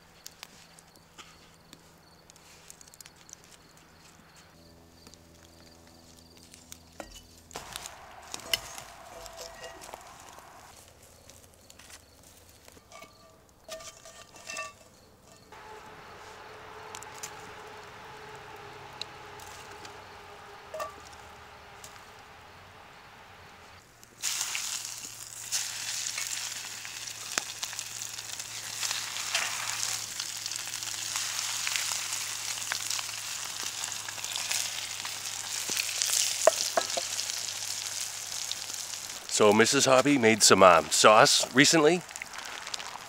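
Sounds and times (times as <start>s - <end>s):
food sizzling with small pops: 0.0s - 14.2s, 15.0s - 43.0s
faint steady hum: 0.0s - 24.2s.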